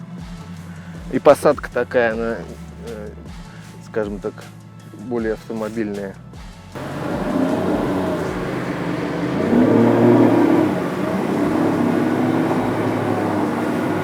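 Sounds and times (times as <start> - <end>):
boat hull moving through water: 6.8 - 14.0
outboard motor running: 6.8 - 14.0.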